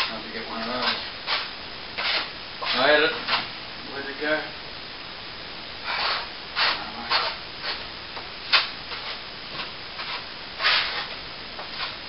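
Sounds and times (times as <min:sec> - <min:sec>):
hand tool scraping plaster wall: 0:00.0 - 0:02.9, 0:05.8 - 0:07.8, 0:10.0 - 0:12.0.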